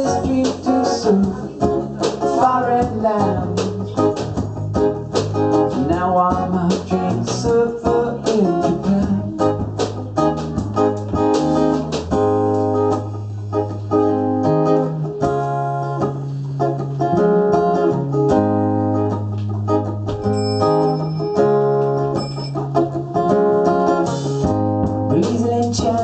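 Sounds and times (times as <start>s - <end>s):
bass line: 0.0s - 15.5s, 16.9s - 26.0s
keyboard: 0.0s - 26.0s
strummed guitar chords: 0.0s - 26.0s.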